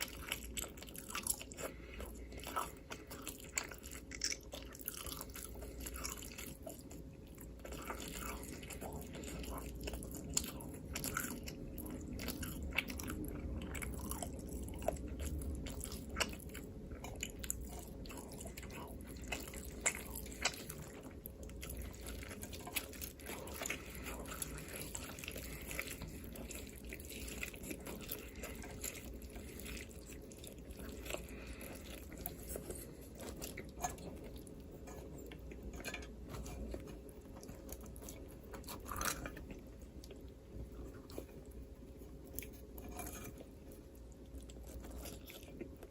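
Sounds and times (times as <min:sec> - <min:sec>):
chewing and crunching: 0:00.0 - 0:45.9
faint steady hum: 0:00.0 - 0:45.9.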